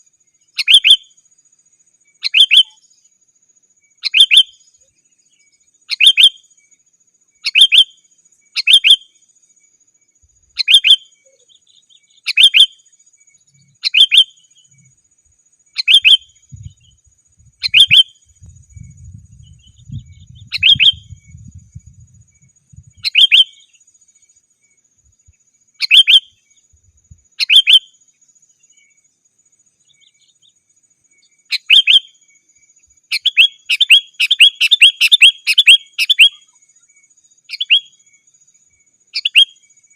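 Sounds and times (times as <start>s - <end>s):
bulbul calling: 0.0s - 1.2s, 2.2s - 3.0s, 4.0s - 6.6s, 7.4s - 9.2s, 10.4s - 15.0s, 15.7s - 24.1s, 25.1s - 29.0s, 31.2s - 36.8s, 37.5s - 38.1s, 39.1s - 39.9s.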